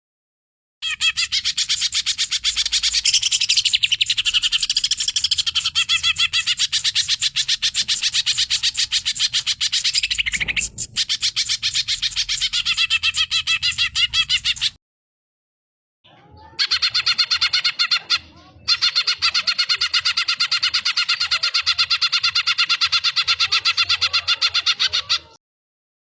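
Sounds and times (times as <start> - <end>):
bird singing chirping notes: 0.8 - 14.8.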